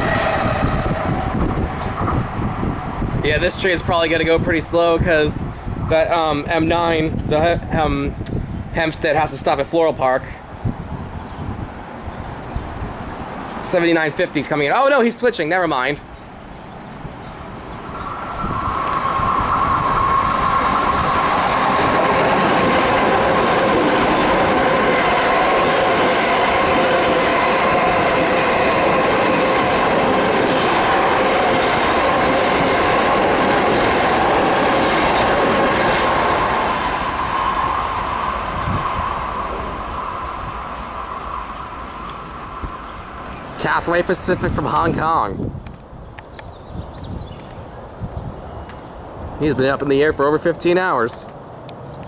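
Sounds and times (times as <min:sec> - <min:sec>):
electric train passing with whine: 0:00.0 - 0:06.2, 0:16.3 - 0:45.0.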